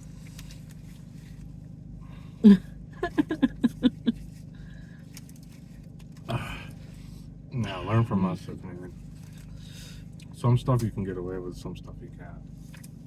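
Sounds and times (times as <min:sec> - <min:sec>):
steady low hum: 0:00.0 - 0:13.0
person laughing: 0:02.4 - 0:04.1.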